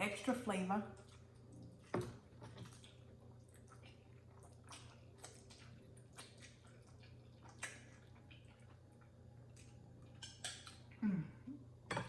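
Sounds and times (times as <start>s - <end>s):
low steady hum: 0.0s - 12.0s
person chewing noodles: 1.0s - 11.5s
wet smacks and clicks: 4.7s - 8.7s, 9.5s - 10.9s.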